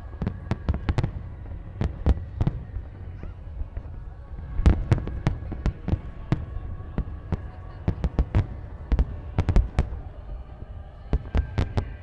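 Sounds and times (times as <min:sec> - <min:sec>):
fireworks bursting bangs: 0:00.0 - 0:03.2.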